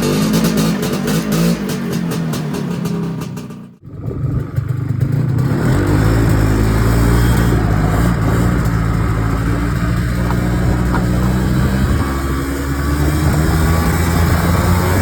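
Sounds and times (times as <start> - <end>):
snowmobile engine running: 4.0 - 15.0.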